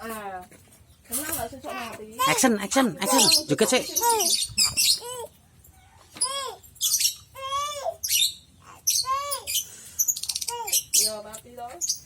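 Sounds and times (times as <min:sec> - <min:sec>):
bird calling: 0:02.2 - 0:05.2
high bird chirping: 0:02.2 - 0:05.2, 0:06.2 - 0:12.0.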